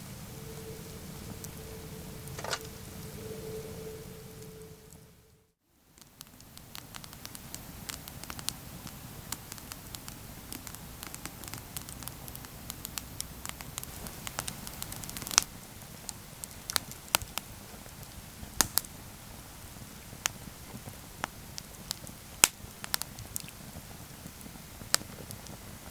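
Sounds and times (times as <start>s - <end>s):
campfire crackling and popping: 5.9s - 25.9s.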